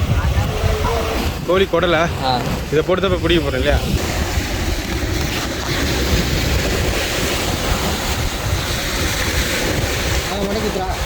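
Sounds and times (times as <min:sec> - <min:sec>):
sea surf rushing on shore: 0:00.0 - 0:11.0
wind buffeting microphone: 0:00.0 - 0:11.0.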